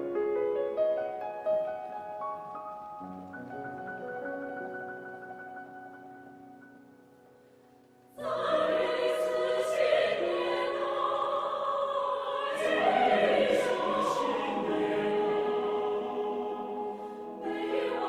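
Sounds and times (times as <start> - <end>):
choir singing: 8.1 - 18.0.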